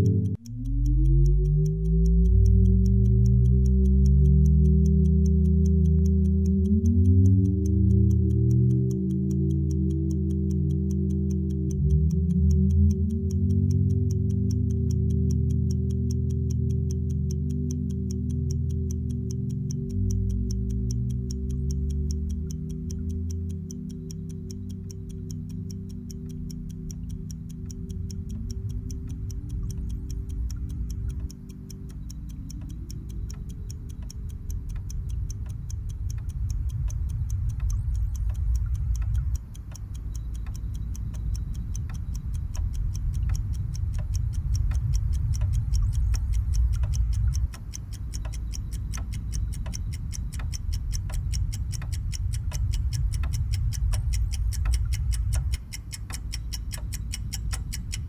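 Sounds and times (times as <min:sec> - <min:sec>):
rising held tones: 0:00.0 - 0:35.6
fast clock-like ticking: 0:00.0 - 0:58.0
low rumbling drone: 0:00.0 - 0:58.0.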